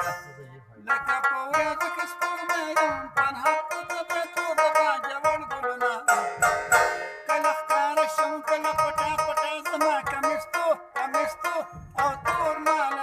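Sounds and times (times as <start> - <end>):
plucked string instrument: 0.0 - 13.0.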